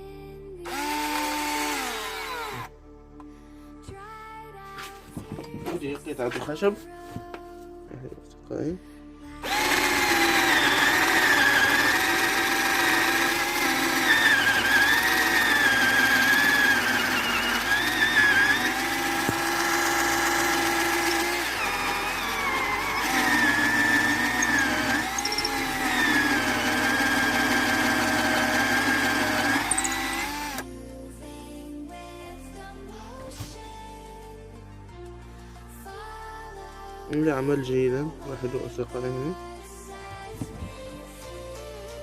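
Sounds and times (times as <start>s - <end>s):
electric drill boring into wood: 0.6s - 2.7s, 9.4s - 30.7s.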